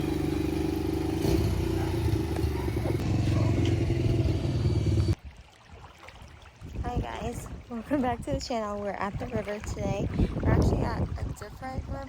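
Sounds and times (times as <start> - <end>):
vehicle engine running with rattle: 0.0 - 5.2.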